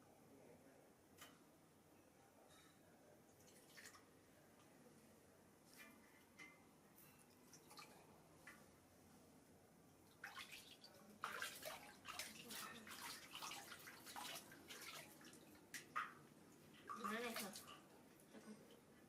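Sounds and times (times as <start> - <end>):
water dripping: 3.3 - 4.8, 7.3 - 8.7, 10.0 - 17.9
bath water splashing and sloshing: 10.1 - 17.9.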